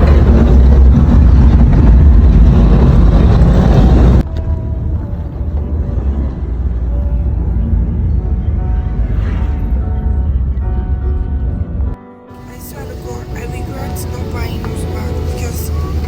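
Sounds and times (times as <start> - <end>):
road vehicle rumble: 0.0 - 16.0.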